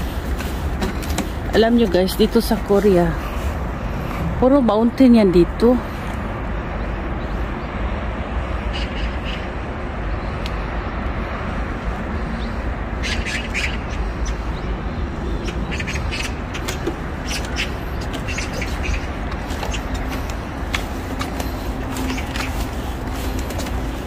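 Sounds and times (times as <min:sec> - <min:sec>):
low outdoor rumble: 0:00.0 - 0:24.0
bird calls: 0:08.5 - 0:10.7, 0:12.2 - 0:24.0.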